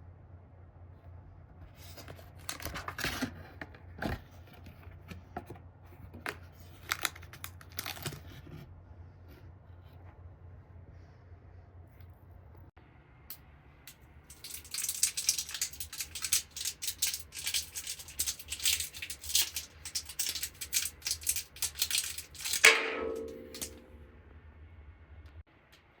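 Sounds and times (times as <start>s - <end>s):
rapid irregular rattling: 14.3s - 24.0s.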